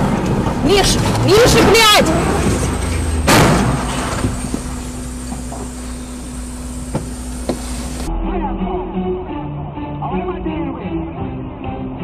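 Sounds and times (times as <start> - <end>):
engine and road noise: 0.0 - 8.2
car collision impact: 1.5 - 8.1.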